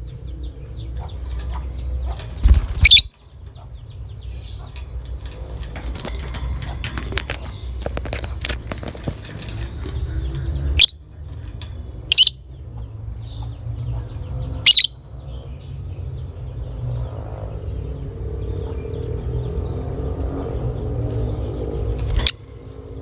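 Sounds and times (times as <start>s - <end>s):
lovebird shrill calls: 1.0s - 3.7s, 10.8s - 11.0s.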